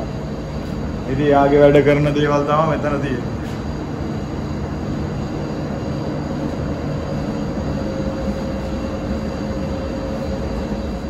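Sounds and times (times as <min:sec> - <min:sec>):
engine-room machinery drone: 0:00.0 - 0:11.0.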